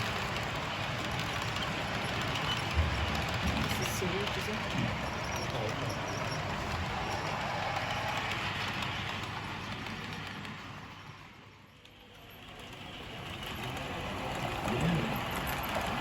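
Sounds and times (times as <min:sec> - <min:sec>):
exhibition hall rumble and clatter: 0:00.0 - 0:07.4, 0:12.6 - 0:16.0.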